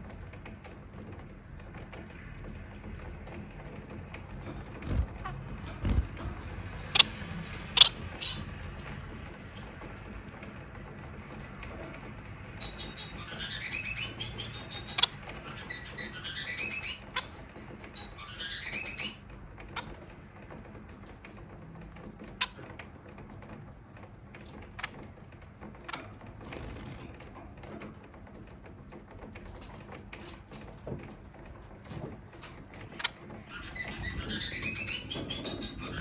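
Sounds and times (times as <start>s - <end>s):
finch singing buzzy phrases: 4.4s - 7.2s, 32.9s - 36.0s.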